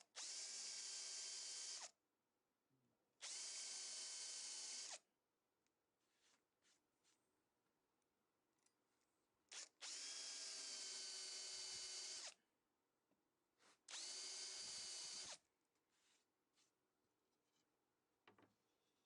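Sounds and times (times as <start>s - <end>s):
electric drill whining: 0.2s - 1.9s, 3.2s - 5.0s, 9.5s - 12.4s, 13.9s - 15.4s.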